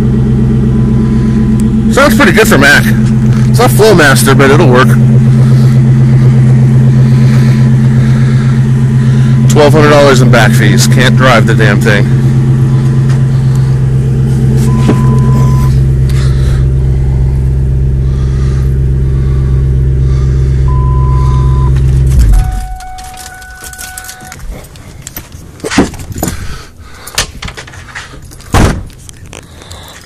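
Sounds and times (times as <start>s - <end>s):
steady electronic tone: 0.0s - 24.4s
car engine idling: 0.0s - 30.0s
sharp clicks and rattles: 21.8s - 30.0s.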